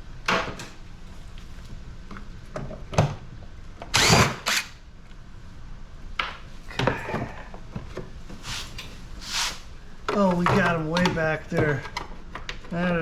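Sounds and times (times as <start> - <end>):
power drill-driver running: 3.9 - 4.8.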